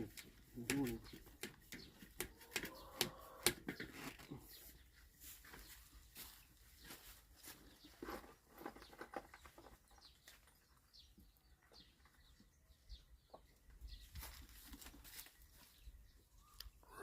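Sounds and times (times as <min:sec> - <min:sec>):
faint bird chirps: 0:08.8 - 0:17.0.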